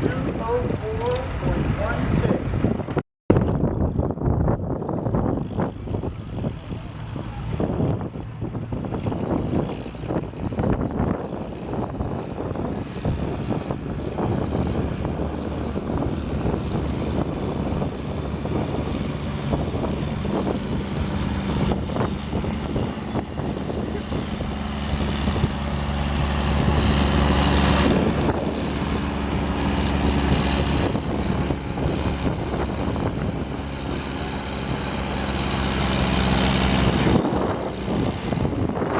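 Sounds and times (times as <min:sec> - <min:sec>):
tractor engine running under load: 0:00.0 - 0:38.9.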